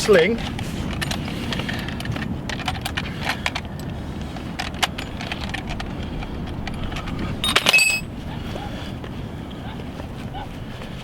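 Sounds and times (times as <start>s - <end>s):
fishing gear clicking and rattling: 0.0s - 8.1s.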